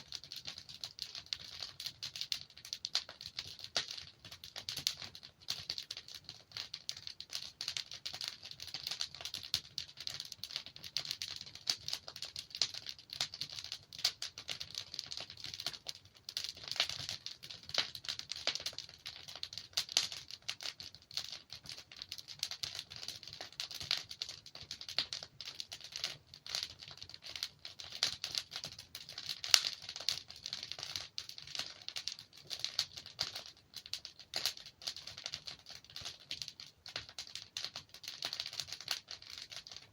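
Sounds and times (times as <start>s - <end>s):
fire popping: 0.0s - 39.9s
wood fire crackling: 0.0s - 39.9s.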